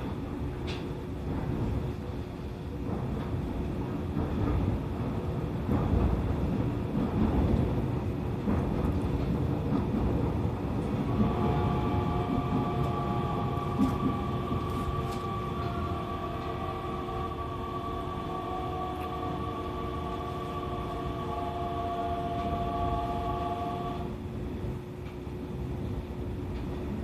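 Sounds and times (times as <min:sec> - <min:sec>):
train wheels rumbling on rails: 0:00.0 - 0:27.0
traction motor whine: 0:11.1 - 0:24.1.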